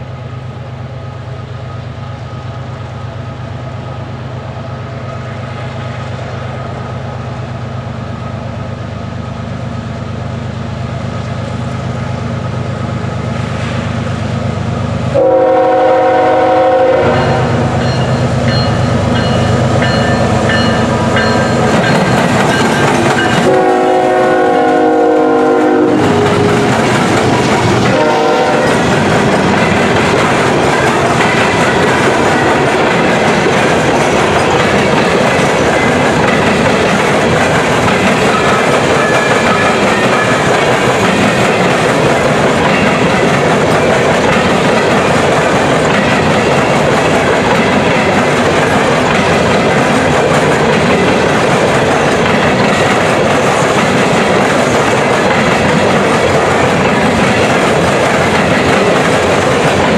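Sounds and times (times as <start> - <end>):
clickety-clack of train wheels: 4.0 - 59.9
locomotive air horn blasts: 15.2 - 17.7, 23.4 - 26.3, 27.9 - 28.8.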